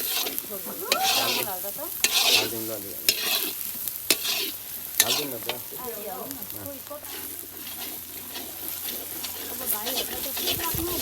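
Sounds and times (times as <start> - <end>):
ladle scraping a pan: 0.0 - 6.0, 6.9 - 11.0
food sizzling in a pan: 0.0 - 11.0.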